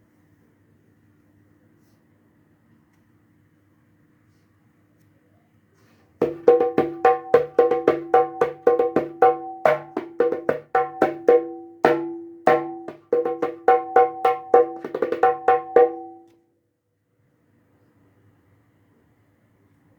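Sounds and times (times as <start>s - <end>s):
hand drum strokes: 6.2s - 16.2s.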